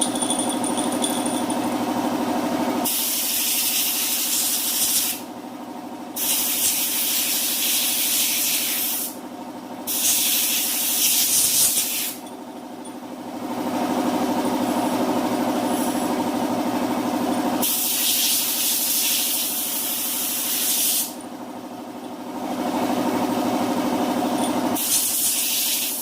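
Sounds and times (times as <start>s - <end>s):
motor running: 0.0s - 5.1s.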